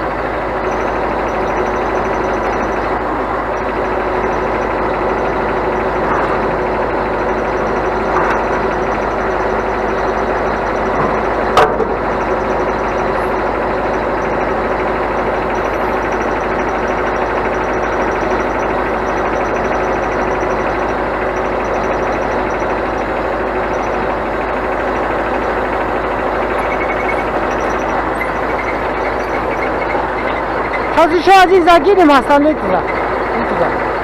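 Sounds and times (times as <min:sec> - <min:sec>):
hydraulic whine: 0:00.0 - 0:34.0
truck engine running: 0:00.0 - 0:34.0.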